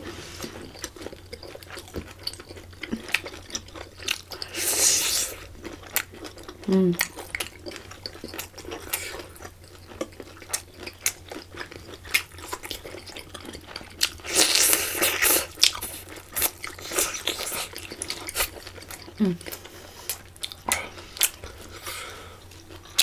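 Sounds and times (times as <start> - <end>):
person chewing wet food: 0.0 - 23.0.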